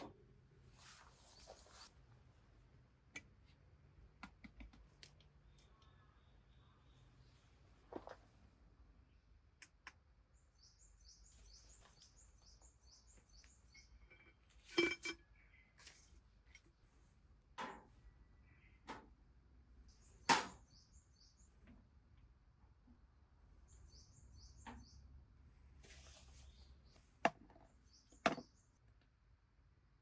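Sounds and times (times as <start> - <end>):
bird chirping: 10.3 - 14.3, 23.6 - 25.1.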